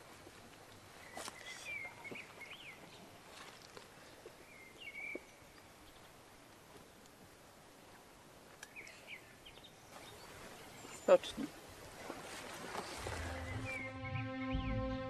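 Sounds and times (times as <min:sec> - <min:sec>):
songbird chirping: 0:00.0 - 0:15.0
faint rustles and clicks: 0:09.9 - 0:13.4.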